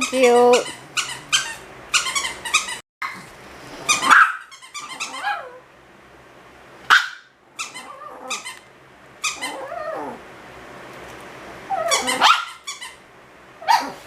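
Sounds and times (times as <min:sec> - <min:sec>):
squeaky toy squeaks: 0:00.0 - 0:02.8, 0:03.9 - 0:05.5, 0:07.6 - 0:08.6, 0:09.2 - 0:09.7, 0:11.8 - 0:13.0
puppy barking: 0:03.9 - 0:05.6, 0:06.9 - 0:08.5, 0:11.8 - 0:12.7, 0:13.6 - 0:14.0
puppy growling: 0:04.8 - 0:05.6, 0:07.6 - 0:08.6, 0:09.3 - 0:10.3, 0:11.6 - 0:12.3.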